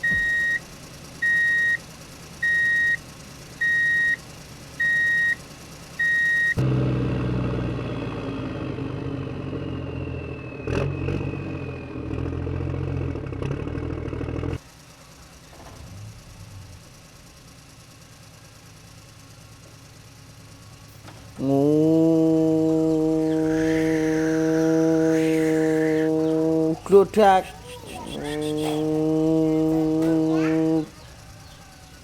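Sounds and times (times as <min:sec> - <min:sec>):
toy reversing beep: 0:00.0 - 0:00.6, 0:01.2 - 0:01.8, 0:02.4 - 0:03.0, 0:03.6 - 0:04.2, 0:04.8 - 0:05.4, 0:06.0 - 0:06.6
recorded truck engine revving: 0:00.0 - 0:32.0.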